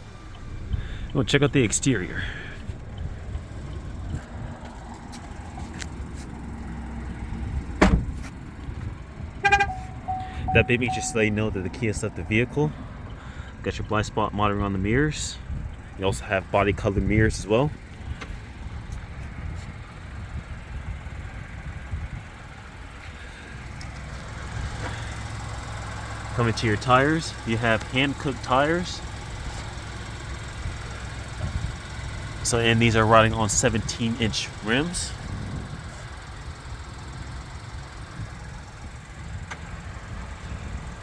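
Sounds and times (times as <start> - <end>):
car engine idling: 0.0 - 41.0
car door shutting: 7.7 - 8.4.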